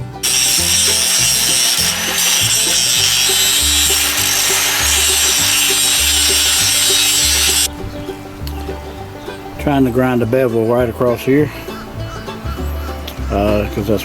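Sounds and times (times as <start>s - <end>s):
angle grinder grinding steel: 0.0s - 7.7s
background music with bass: 0.0s - 14.0s.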